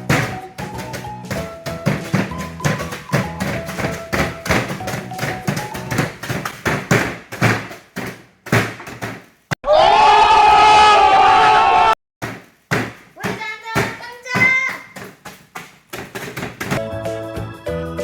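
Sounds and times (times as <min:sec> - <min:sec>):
background music: 0:00.0 - 0:06.1, 0:16.8 - 0:18.0
pestle crushing biscuits in bowl: 0:00.0 - 0:09.3.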